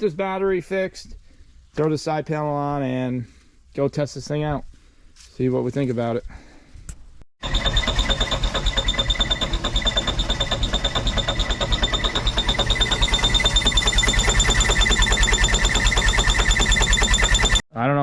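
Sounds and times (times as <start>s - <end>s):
starter cranking diesel engine: 7.4s - 17.6s.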